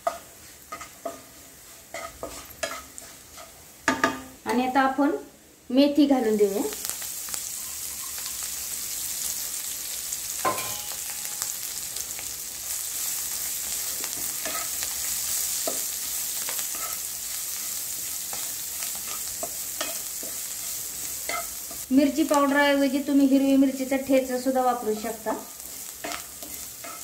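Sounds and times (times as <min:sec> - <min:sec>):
spatula knocking and scraping pan: 0:00.0 - 0:04.6, 0:10.4 - 0:11.2, 0:25.7 - 0:27.0
leaves sizzling in hot oil: 0:00.0 - 0:27.0.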